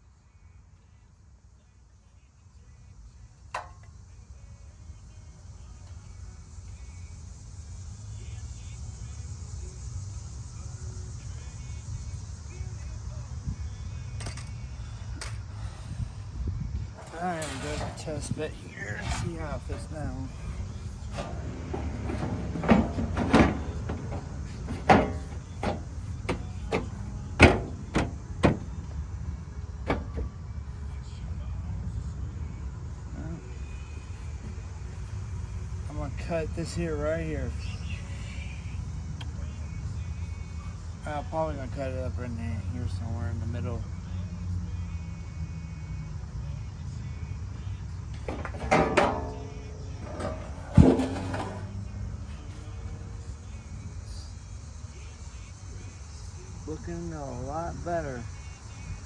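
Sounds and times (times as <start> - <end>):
metal creaking: 16.8 - 28.8, 29.8 - 30.4, 48.2 - 52.9
metal panel knocking: 21.1 - 28.7, 48.3 - 51.8.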